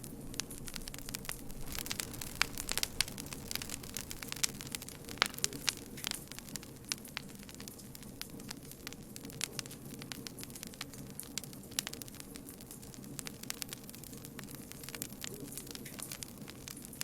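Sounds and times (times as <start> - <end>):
campfire pops and snaps: 0.0 - 17.0
low rush of flame: 0.0 - 17.0.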